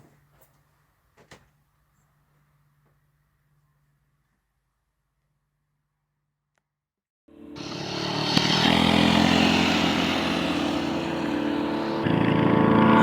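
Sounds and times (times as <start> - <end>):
small gasoline engine running: 7.3 - 13.0.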